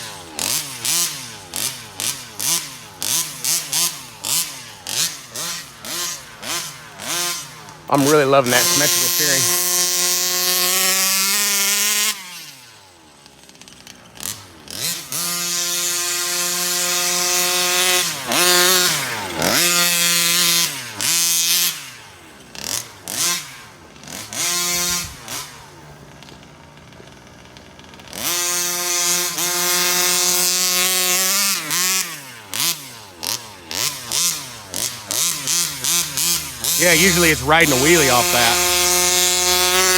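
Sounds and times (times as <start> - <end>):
two-stroke engine revving: 0.0 - 39.9
engine throttle blips: 33.7 - 39.9.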